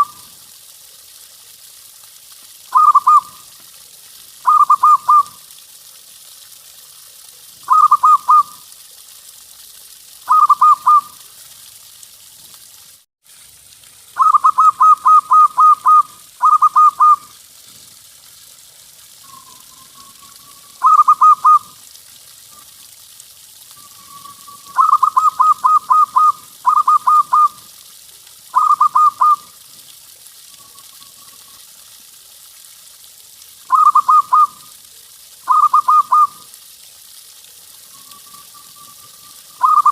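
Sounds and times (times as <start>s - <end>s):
dove cooing: 2.7s - 3.4s, 4.4s - 5.4s, 7.7s - 8.5s, 14.2s - 17.3s, 20.8s - 21.7s, 24.7s - 27.6s, 28.6s - 29.4s, 35.5s - 36.4s, 39.6s - 39.9s.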